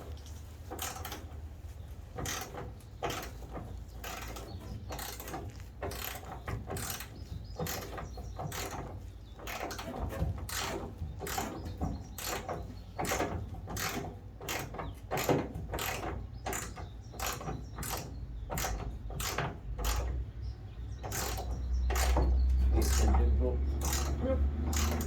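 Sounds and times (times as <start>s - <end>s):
socket ratchet clicking: 23.8s - 25.0s.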